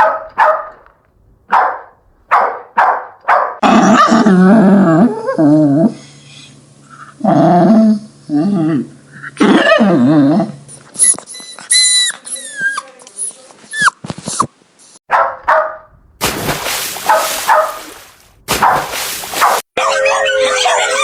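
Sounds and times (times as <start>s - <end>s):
puppies barking and yelping: 19.4s - 21.0s
puppies whimpering: 19.8s - 21.0s.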